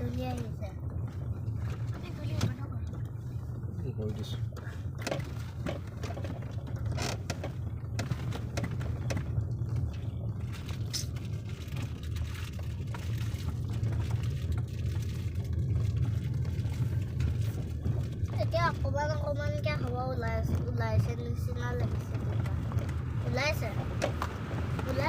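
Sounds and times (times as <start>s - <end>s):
car driving rumble: 0.0s - 25.0s
light knocks and rattles: 0.0s - 25.0s.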